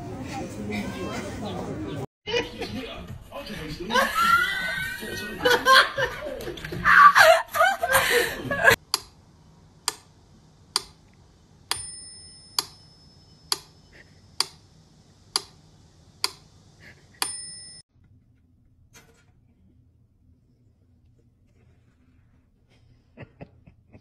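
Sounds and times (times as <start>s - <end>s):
short bell-like ring: 11.7s - 13.5s, 17.2s - 17.8s.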